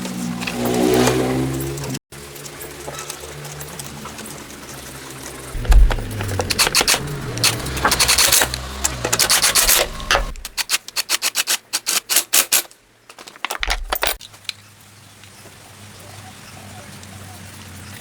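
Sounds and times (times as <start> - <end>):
low hum: 5.5 - 10.6
rhythmic scraping strokes: 5.5 - 12.4.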